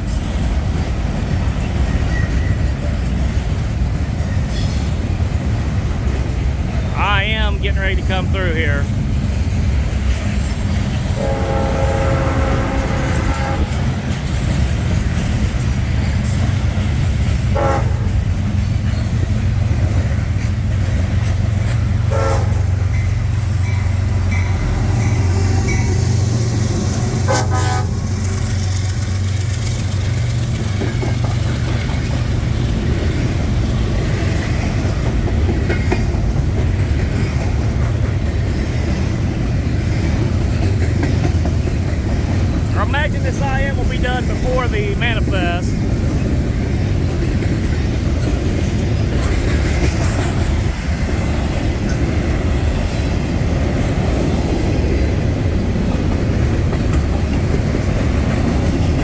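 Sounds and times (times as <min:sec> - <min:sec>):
freight train rumbling past: 0:00.0 - 0:59.0
locomotive horn chord: 0:11.2 - 0:13.8, 0:17.6 - 0:18.0, 0:22.1 - 0:22.6, 0:27.3 - 0:28.0.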